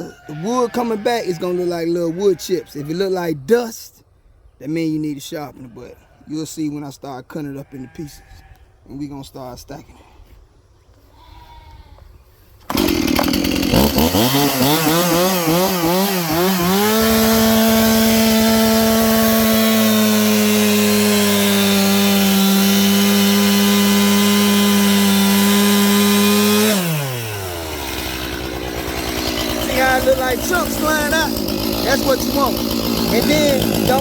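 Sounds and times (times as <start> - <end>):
chainsaw cutting a log: 12.7 - 34.0.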